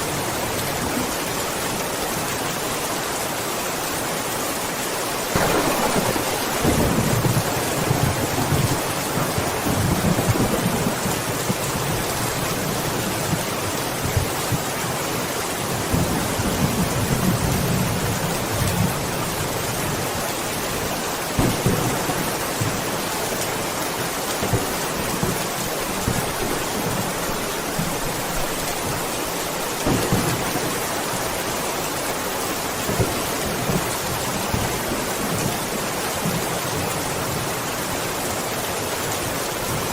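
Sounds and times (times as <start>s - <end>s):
heavy rain hissing: 0.0s - 39.9s
thunder rumbling: 5.3s - 14.6s, 21.4s - 23.4s, 29.6s - 31.6s.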